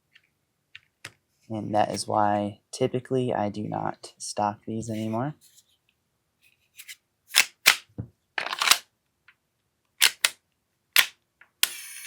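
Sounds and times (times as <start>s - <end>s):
pistol mechanical clicks: 10.0s - 10.4s, 11.0s - 11.9s.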